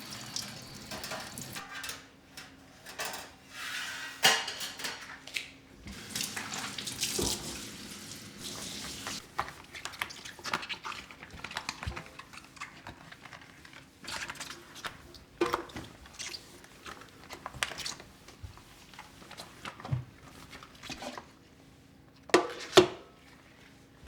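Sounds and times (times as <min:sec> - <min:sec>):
tap water running into sink: 0:00.0 - 0:01.6, 0:05.9 - 0:09.3.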